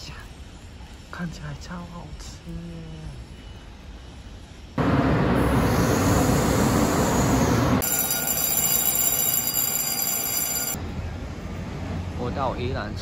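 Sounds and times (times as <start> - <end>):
steady high ringing tones: 0.0 - 4.8, 6.2 - 10.9
train running rushing noise: 3.8 - 8.8.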